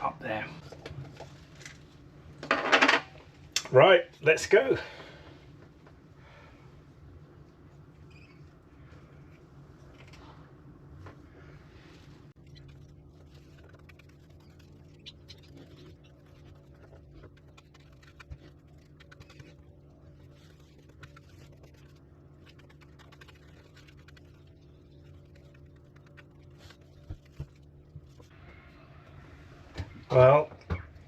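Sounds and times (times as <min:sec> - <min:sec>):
low steady hum: 0:00.0 - 0:31.0
paintbrush brushing and tapping: 0:12.4 - 0:28.3.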